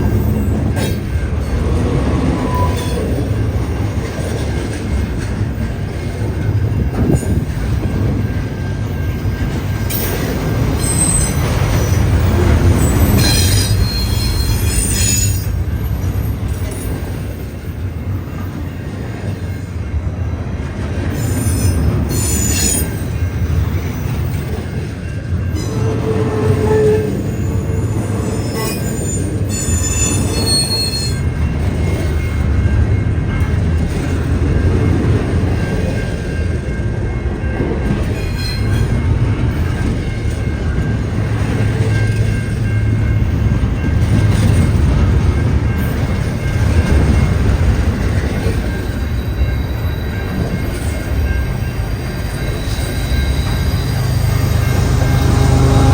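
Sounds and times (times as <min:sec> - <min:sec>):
wheels squealing: 0:25.6 - 0:31.3.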